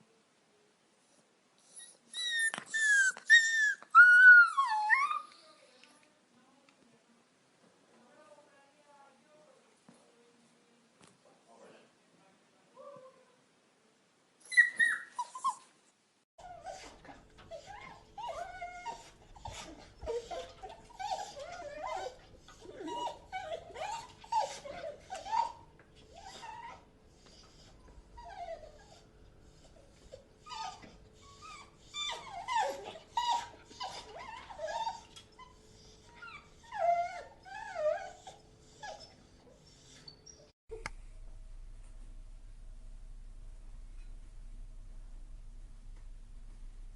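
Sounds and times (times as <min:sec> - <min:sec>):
dog whimpering and whining: 0:01.6 - 0:05.5, 0:14.4 - 0:15.7, 0:16.4 - 0:40.5.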